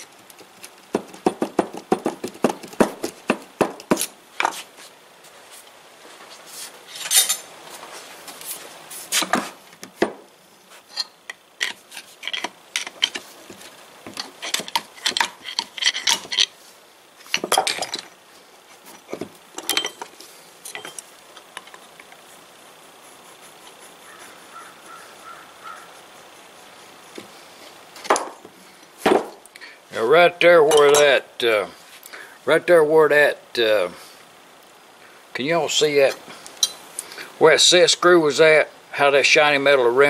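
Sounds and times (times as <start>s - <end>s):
metal tools clinking together: 6.9s - 7.5s, 14.2s - 16.5s, 19.6s - 21.8s, 30.6s - 31.2s, 36.6s - 36.9s.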